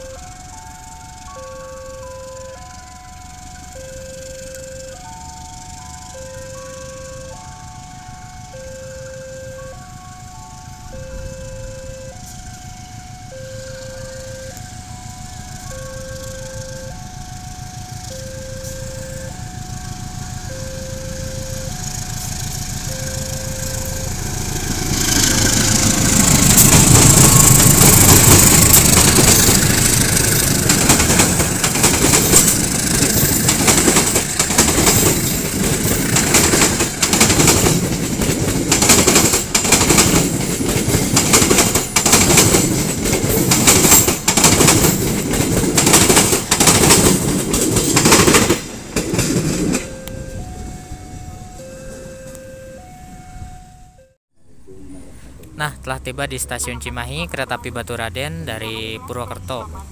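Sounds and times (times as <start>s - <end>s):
diesel locomotive engine: 0.0s - 59.9s
clickety-clack of train wheels: 14.5s - 50.6s.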